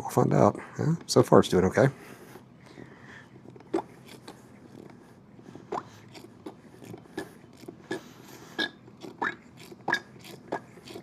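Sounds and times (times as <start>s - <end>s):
hand pump clicking and squelching: 5.7s - 8.0s, 8.6s - 11.0s.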